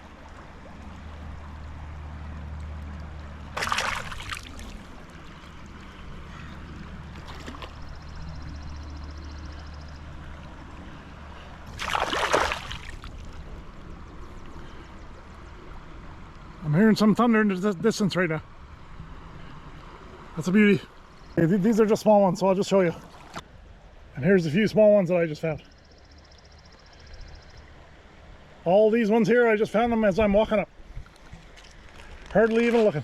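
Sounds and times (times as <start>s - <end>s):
river rushing: 3.2s - 7.9s, 11.2s - 13.7s.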